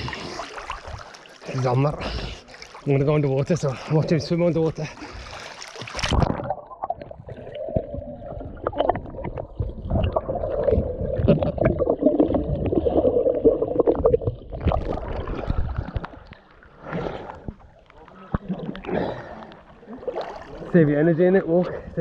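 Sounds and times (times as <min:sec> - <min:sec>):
underwater gurgling and sloshing: 0:00.0 - 0:22.0
water splash: 0:04.8 - 0:17.6, 0:20.0 - 0:20.7.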